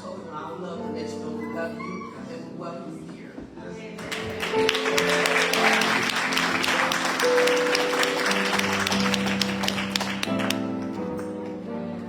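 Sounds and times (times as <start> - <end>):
congregation applauding: 4.0 - 11.0.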